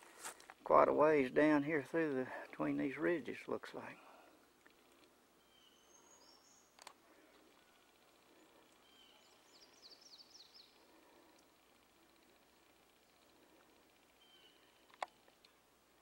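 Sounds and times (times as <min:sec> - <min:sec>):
distant songbird chirps: 0:04.0 - 0:15.6.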